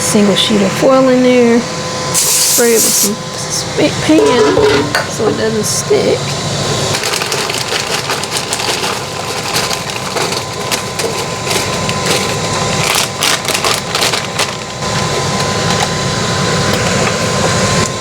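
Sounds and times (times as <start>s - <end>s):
aluminium foil crinkling: 6.9s - 15.9s.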